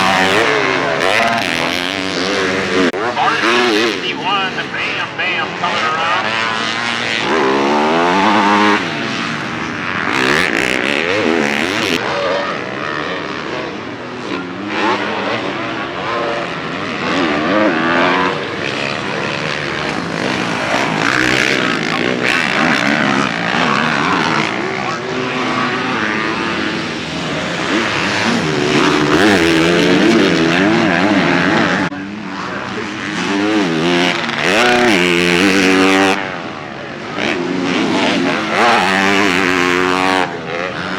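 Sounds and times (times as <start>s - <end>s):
dirt bike engines revving: 0.0s - 40.9s.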